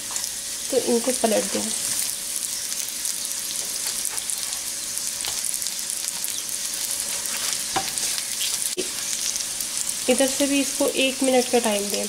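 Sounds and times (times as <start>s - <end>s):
dumplings sizzling in a pan: 0.0s - 12.0s
spatula tapping and scraping: 5.2s - 5.5s, 7.0s - 8.6s.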